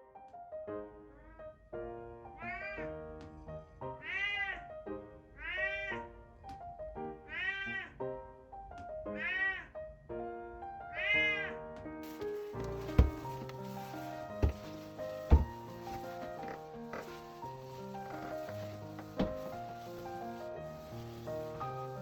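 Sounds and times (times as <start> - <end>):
piano background music: 0.0 - 22.0
cat meowing: 2.4 - 2.8, 4.0 - 4.6, 5.4 - 6.1, 7.3 - 8.0, 9.2 - 9.8, 11.0 - 11.6.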